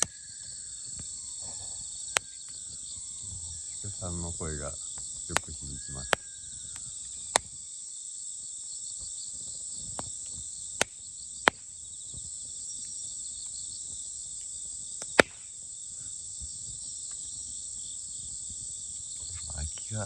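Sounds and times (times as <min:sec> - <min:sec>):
campfire popping and snapping: 0:00.0 - 0:01.2, 0:04.4 - 0:07.7, 0:09.4 - 0:15.7
crickets and insects chirping: 0:00.0 - 0:20.0.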